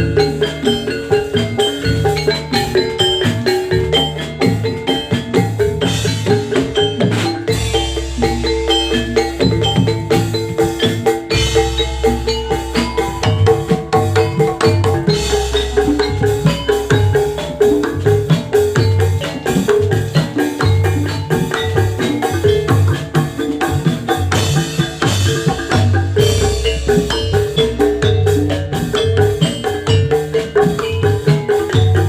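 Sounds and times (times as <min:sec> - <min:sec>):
metallophones playing fast melody: 0:00.0 - 0:32.0
steady drum beats: 0:00.0 - 0:32.0.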